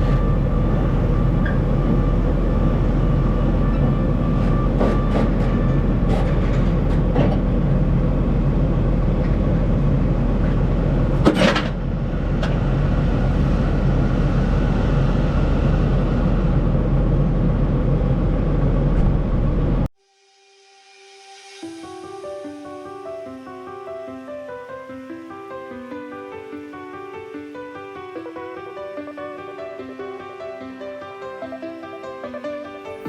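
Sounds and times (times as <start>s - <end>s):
large vehicle rumbling: 0.0s - 19.9s.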